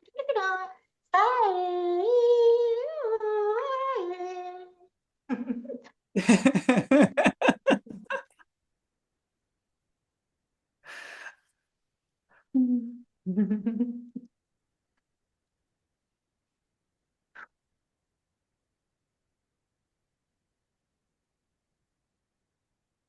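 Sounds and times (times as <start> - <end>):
person singing wordless syllables: 12.5 - 14.3.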